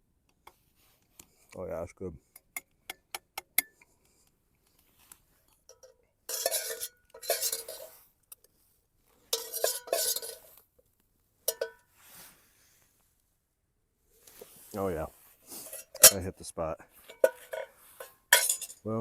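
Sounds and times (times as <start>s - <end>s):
spoon scraping metal pot: 5.7s - 8.0s, 9.3s - 10.5s, 15.5s - 16.3s, 17.0s - 18.8s.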